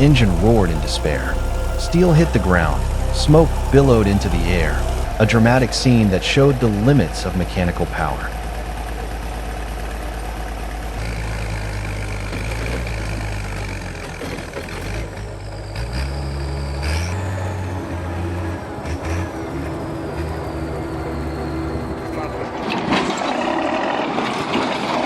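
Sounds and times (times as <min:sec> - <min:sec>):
faint high whine: 0:00.0 - 0:09.1
heavy machine engine revving: 0:00.0 - 0:22.8.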